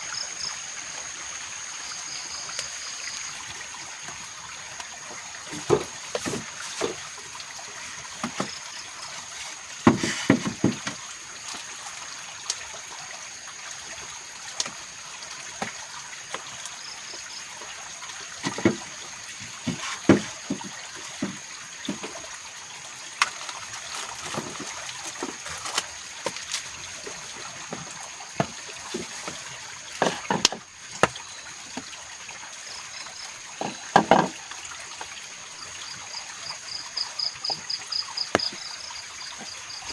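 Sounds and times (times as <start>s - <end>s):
water trickling: 0.0s - 39.9s
knocks and clatters: 33.6s - 34.4s.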